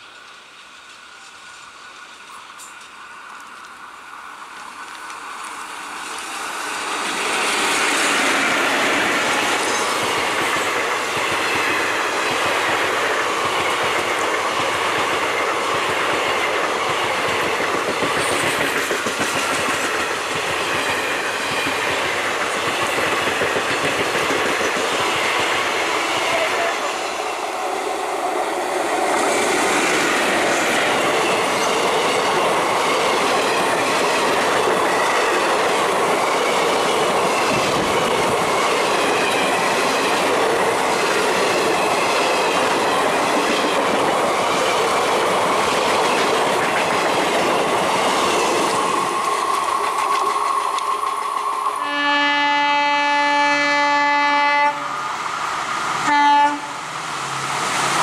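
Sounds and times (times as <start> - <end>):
train rushing past: 0.0 - 58.0
locomotive horn blasts: 51.8 - 54.9, 56.0 - 56.8.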